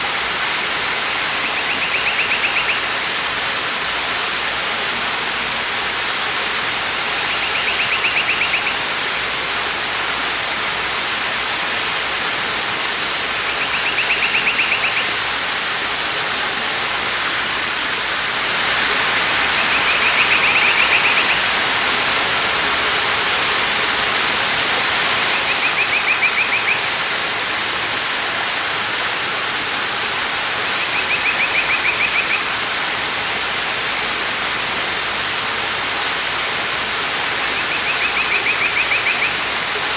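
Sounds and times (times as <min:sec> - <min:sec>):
waterfall rushing: 0:00.0 - 0:39.9
bird high trill: 0:01.4 - 0:02.9, 0:07.3 - 0:08.8, 0:13.6 - 0:15.2.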